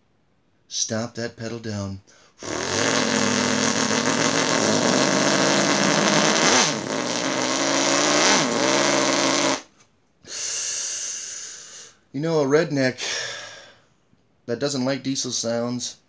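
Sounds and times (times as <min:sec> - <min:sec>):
brief hissing: 0:02.4 - 0:09.6
car engine revving: 0:02.6 - 0:09.5.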